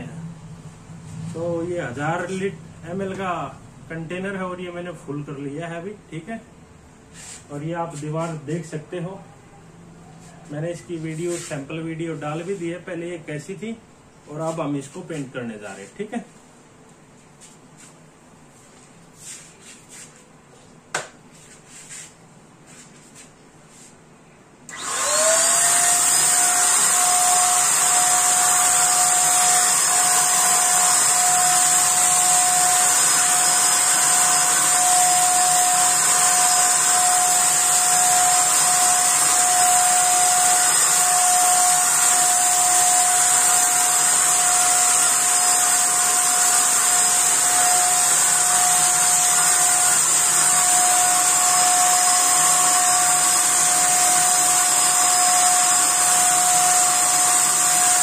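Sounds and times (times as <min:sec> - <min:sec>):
paint sprayer motor whine: 0:24.7 - 0:58.0.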